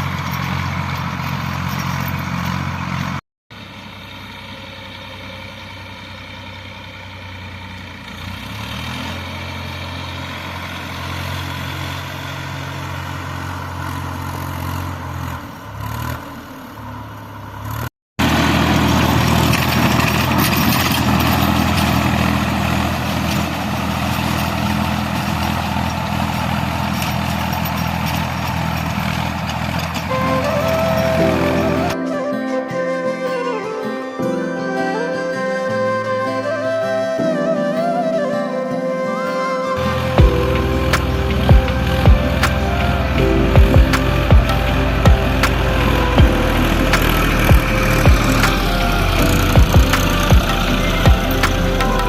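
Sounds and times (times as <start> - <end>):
tractor engine running: 0.0 - 31.9, 39.8 - 52.0.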